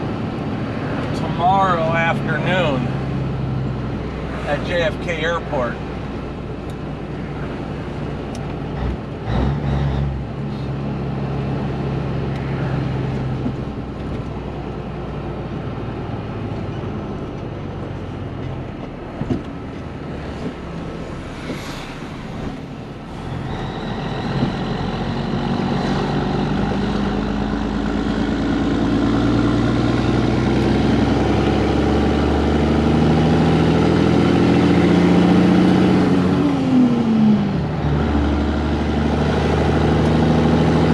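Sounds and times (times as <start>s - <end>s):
diesel truck engine: 0.0s - 40.9s.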